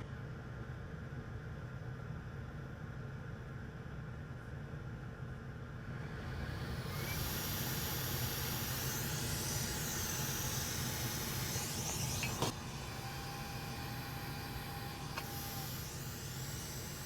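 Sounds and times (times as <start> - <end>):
hot air station hissing: 5.8 - 17.0.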